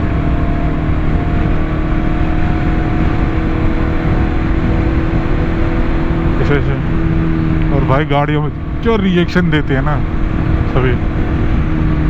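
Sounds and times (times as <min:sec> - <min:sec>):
motorcycle engine cruising: 0:00.0 - 0:12.0
rush of riding noise: 0:00.0 - 0:12.0.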